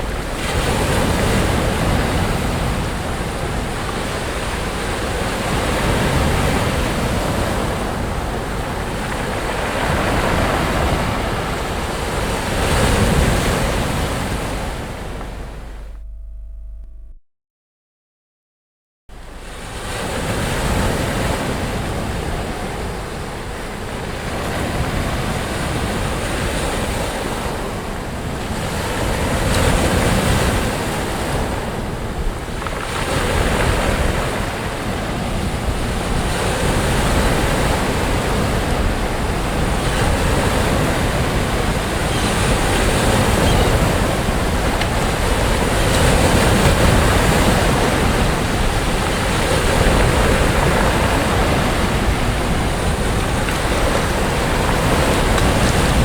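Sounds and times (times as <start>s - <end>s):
sea waves breaking on beach: 0.0s - 15.8s, 19.2s - 56.0s.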